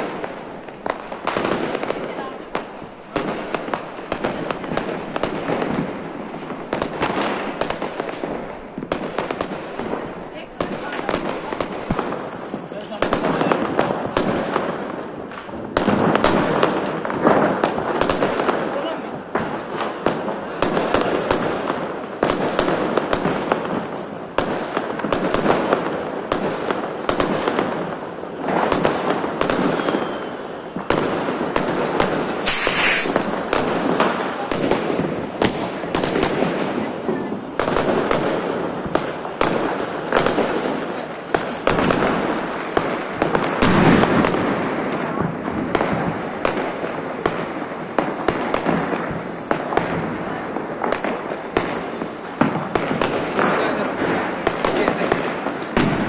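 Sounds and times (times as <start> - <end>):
firecrackers crackling and banging: 0.0 - 56.0
loud firework burst: 29.4 - 36.7.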